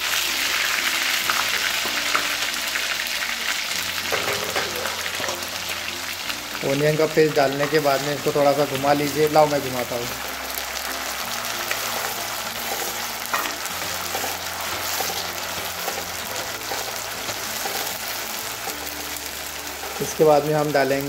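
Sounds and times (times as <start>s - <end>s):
onion paste sizzling in oil: 0.0s - 21.0s
spatula stirring: 11.1s - 20.5s.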